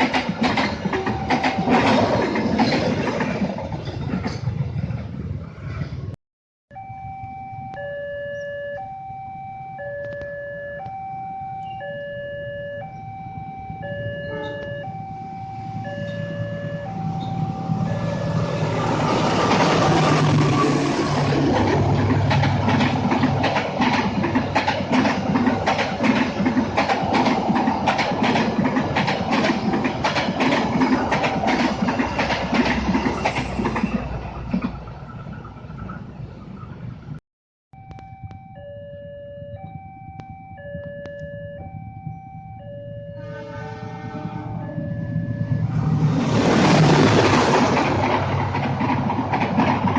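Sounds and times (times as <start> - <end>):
train wheels clacking: 0.0 - 4.6, 18.9 - 36.0, 46.3 - 49.9
train rumble: 0.0 - 6.2, 12.1 - 37.2, 40.5 - 49.9
level crossing alarm two tones: 0.8 - 2.1, 6.7 - 19.6, 37.8 - 46.1.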